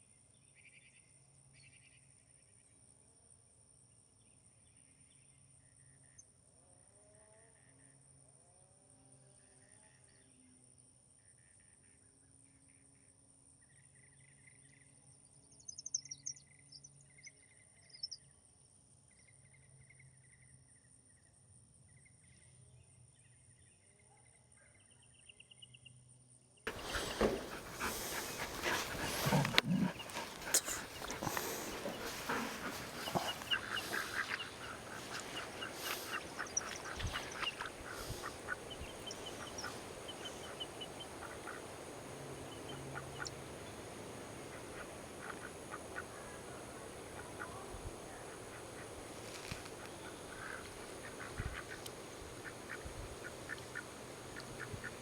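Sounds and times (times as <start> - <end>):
rustling and knocks: 26.7 - 38.3
ducks quacking: 26.7 - 55.0
insects chirping: 26.7 - 55.0
short bird calls: 26.7 - 55.0.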